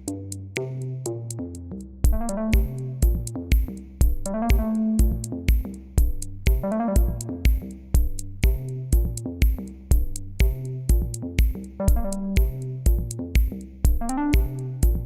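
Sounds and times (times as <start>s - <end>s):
synthesizer notes: 2.1s - 3.4s, 4.3s - 5.5s, 6.5s - 7.5s, 11.8s - 12.6s, 14.0s - 15.0s
kick drum beat: 2.1s - 15.0s.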